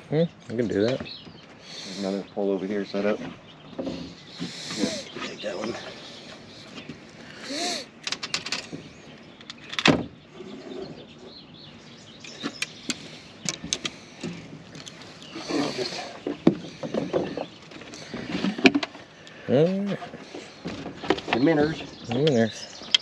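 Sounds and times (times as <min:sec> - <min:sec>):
fishing gear clicks and knocks: 0:08.0 - 0:08.8, 0:12.2 - 0:19.0.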